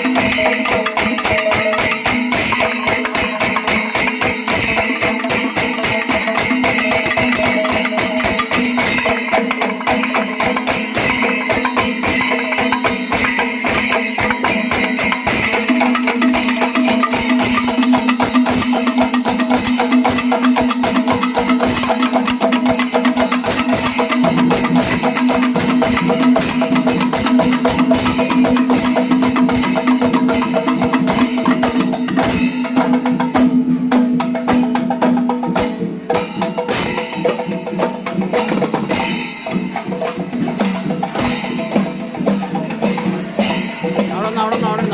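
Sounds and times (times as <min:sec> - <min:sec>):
cymbals clashing: 0:00.0 - 0:34.7, 0:35.6 - 0:44.9
fast dense drumming: 0:41.8 - 0:44.9.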